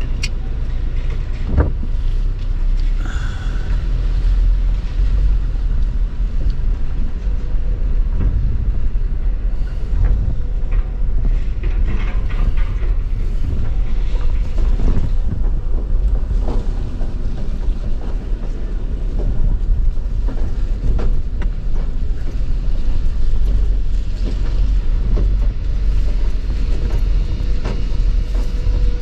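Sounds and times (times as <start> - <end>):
vehicle cab rumble: 0.0 - 29.0
knocks and rattles: 5.8 - 29.0.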